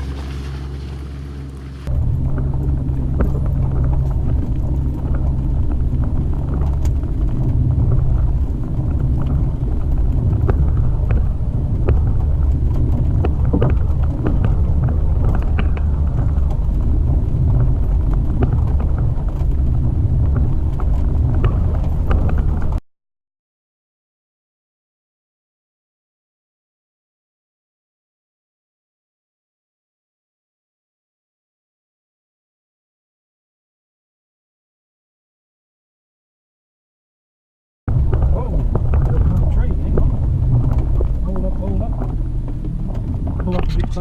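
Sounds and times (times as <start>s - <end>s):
vehicle engine rumble: 0.0s - 22.8s, 37.9s - 44.0s
knocks and rattles from bumps: 1.9s - 22.8s, 37.9s - 44.0s.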